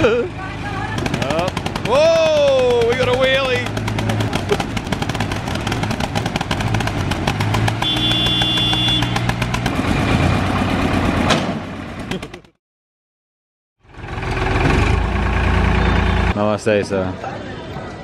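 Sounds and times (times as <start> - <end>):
diesel engine chugging: 0.0 - 12.5, 13.8 - 16.4.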